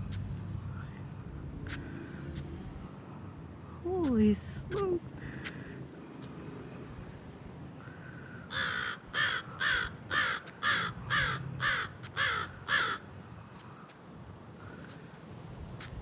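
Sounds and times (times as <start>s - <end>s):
crow cawing: 7.8s - 13.1s.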